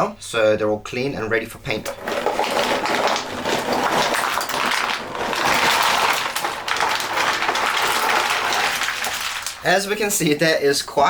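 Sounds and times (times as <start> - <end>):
plastic pieces clattering: 1.7 - 10.4.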